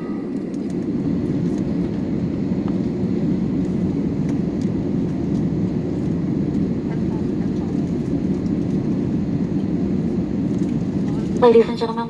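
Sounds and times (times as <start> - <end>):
low rumble in aircraft cabin: 0.0 - 12.0.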